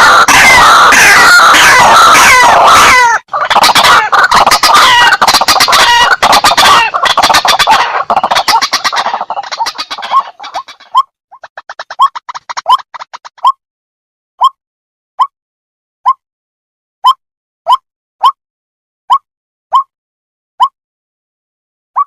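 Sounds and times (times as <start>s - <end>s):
waterhen calls: 0.0s - 13.5s.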